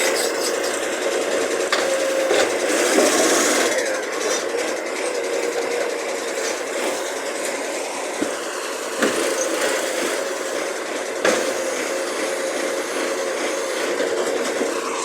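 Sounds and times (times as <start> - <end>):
hydraulic bin lift rattling: 0.0 - 15.0.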